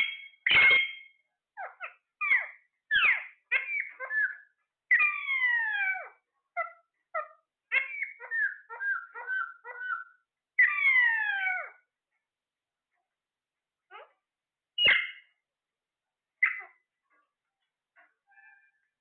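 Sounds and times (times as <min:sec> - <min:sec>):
parrot calls gliding downward: 0:00.0 - 0:11.8
parrot chirping: 0:00.0 - 0:11.9, 0:14.8 - 0:15.4, 0:16.4 - 0:16.9, 0:18.0 - 0:18.8.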